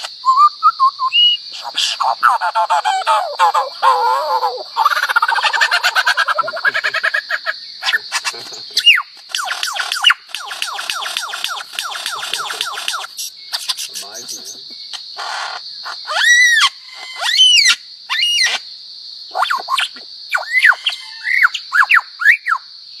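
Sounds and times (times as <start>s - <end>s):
bird whistled calls: 0.0s - 2.4s, 8.8s - 14.6s, 19.3s - 22.6s
high insect buzz: 0.0s - 23.0s.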